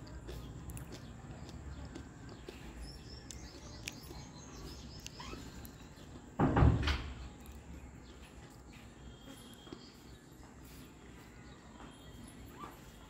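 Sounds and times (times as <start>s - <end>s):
low outdoor hum: 0.0s - 13.0s
faint bird chirps and whistles: 2.7s - 6.0s, 8.8s - 13.0s.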